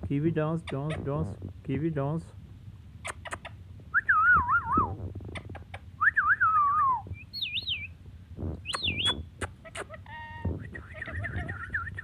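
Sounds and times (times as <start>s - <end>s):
parrot whistling: 6.0s - 7.9s, 8.6s - 12.0s.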